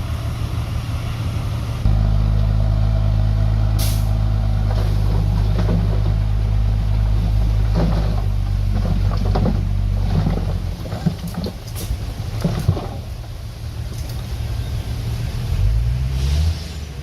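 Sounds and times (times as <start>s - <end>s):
diesel engine droning: 0.0s - 17.0s
knocks and rattles: 4.6s - 6.4s, 7.0s - 13.3s.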